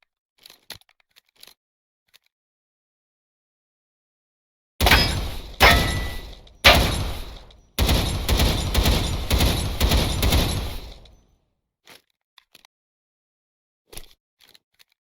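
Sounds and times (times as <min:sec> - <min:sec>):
pistol shots: 0:04.8 - 0:11.2.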